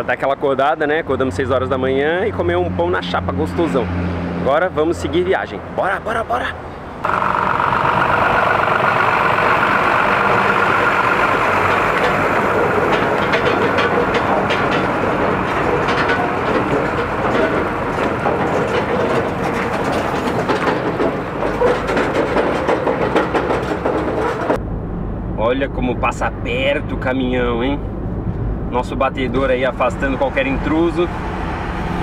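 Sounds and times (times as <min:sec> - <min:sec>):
car road and wind noise: 0:00.0 - 0:32.0
rattling clicks: 0:07.9 - 0:24.6.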